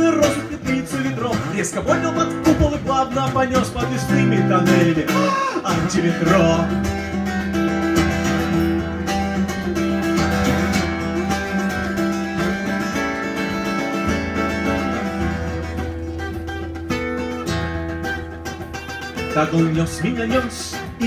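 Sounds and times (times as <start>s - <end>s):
guitar strumming chords: 0.0s - 21.0s.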